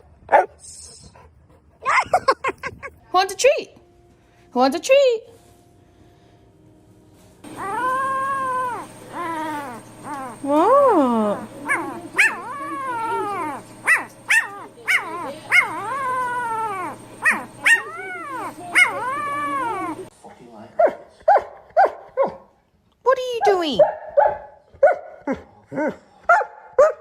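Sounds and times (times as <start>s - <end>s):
dog yipping: 0.3s - 0.6s, 7.5s - 20.1s
dog whine-howling: 7.5s - 20.1s.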